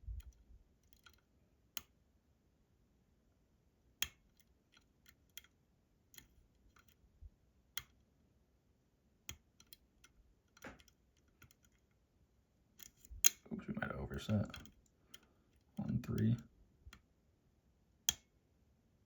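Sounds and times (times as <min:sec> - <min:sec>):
lock pick clicking in lock: 0:09.3 - 0:11.8.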